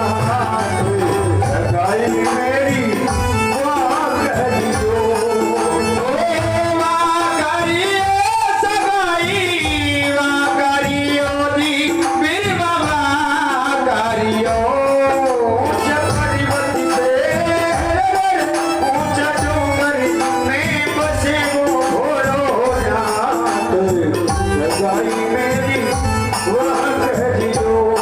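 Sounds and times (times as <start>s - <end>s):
steady drumming: 0.0s - 28.0s.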